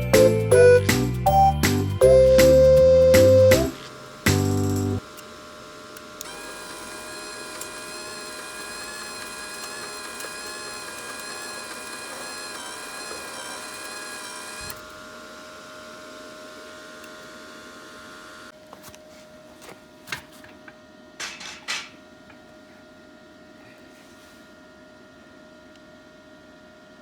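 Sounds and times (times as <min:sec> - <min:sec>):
constant electrical hum: 0:02.0 - 0:27.0
small electric motor whirring: 0:03.7 - 0:18.5.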